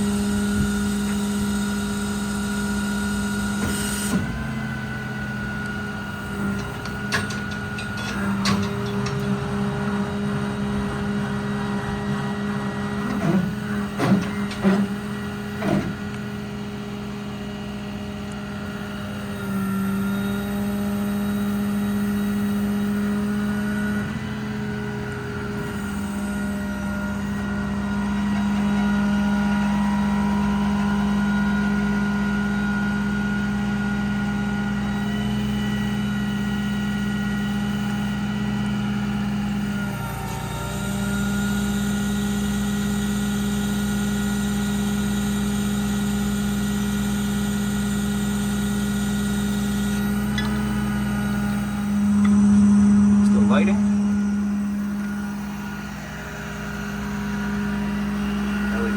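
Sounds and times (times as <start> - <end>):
truck diesel engine running: 0.0 - 58.9.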